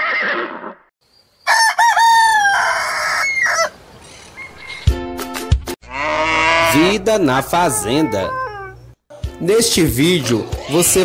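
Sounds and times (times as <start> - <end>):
horse whinny: 0.0 - 0.8, 5.8 - 8.8
rooster crowing: 1.4 - 4.9, 5.8 - 7.0.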